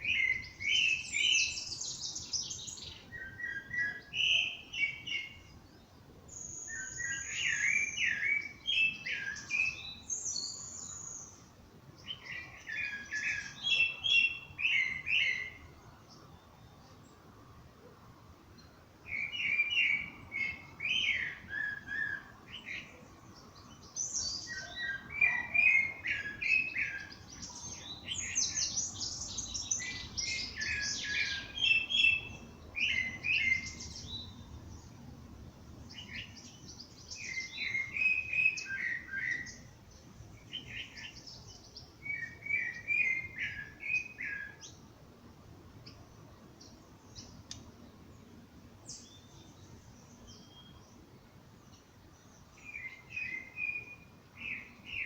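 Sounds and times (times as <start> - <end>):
songbird warbling: 23.9 - 34.5, 35.9 - 39.7.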